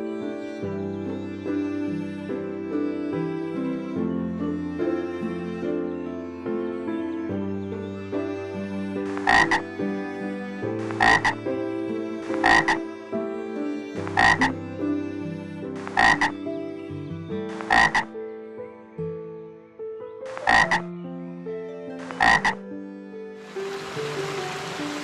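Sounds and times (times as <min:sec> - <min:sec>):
background music: 0:00.0 - 0:25.0
animal call of two pulses: 0:16.0 - 0:16.3.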